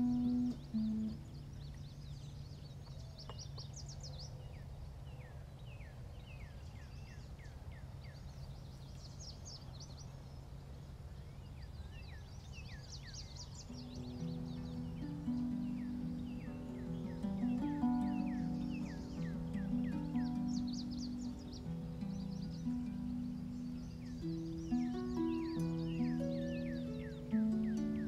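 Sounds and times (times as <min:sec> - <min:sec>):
low background hum: 0:00.0 - 0:28.0
small birds chirping: 0:00.0 - 0:28.0.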